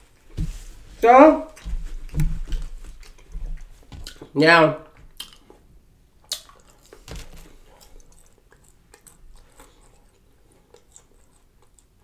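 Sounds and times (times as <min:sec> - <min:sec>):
crunchy chewing: 0:06.2 - 0:12.0.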